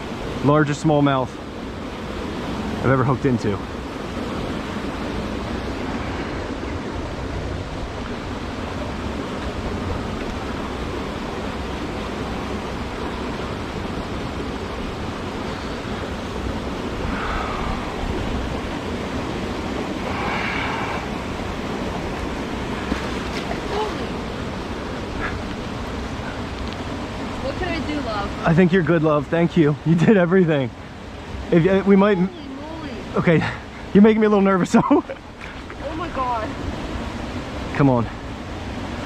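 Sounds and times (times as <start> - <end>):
creek flowing: 0.0 - 39.0
wind rumbling on microphone: 1.4 - 28.8.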